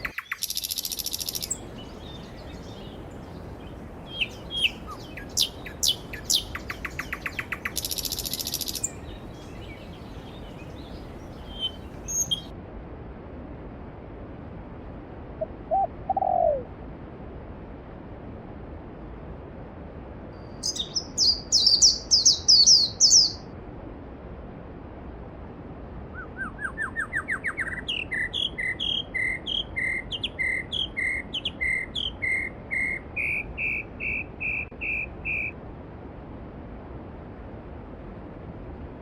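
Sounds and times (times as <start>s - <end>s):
songbirds singing: 0.0s - 12.5s, 20.4s - 23.5s, 26.2s - 35.6s.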